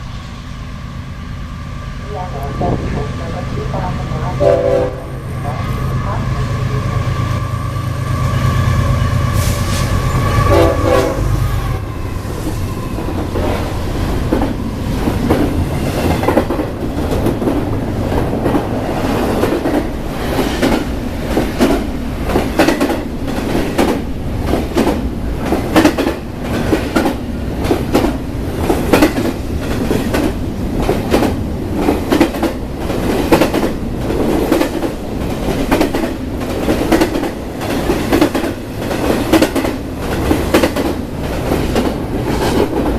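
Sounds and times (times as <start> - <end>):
diesel locomotive rumble: 0.0 - 42.9
locomotive horn: 3.8 - 11.7.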